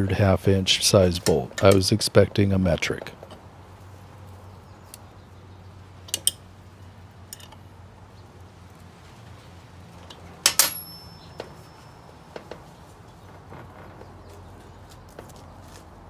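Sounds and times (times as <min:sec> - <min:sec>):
wrench clinking on metal bolts: 0:06.1 - 0:06.4, 0:07.3 - 0:07.6, 0:10.0 - 0:12.6.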